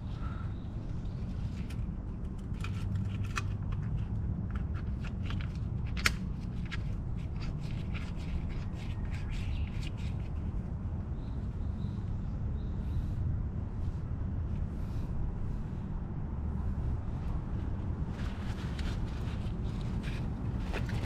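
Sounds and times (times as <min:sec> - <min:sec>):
steady low rumble: 0:10.4 - 0:21.0.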